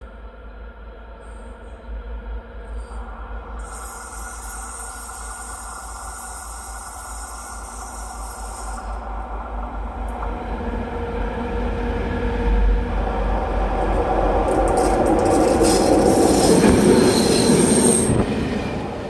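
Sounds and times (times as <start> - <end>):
diesel locomotive engine rumbling: 0.0 - 19.0
high hiss: 2.6 - 9.1.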